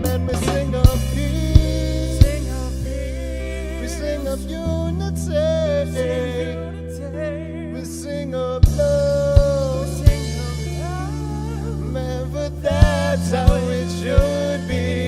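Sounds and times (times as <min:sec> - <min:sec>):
bass and sustained chords: 0:00.0 - 0:15.0
drum hits: 0:00.1 - 0:02.6, 0:12.8 - 0:14.6.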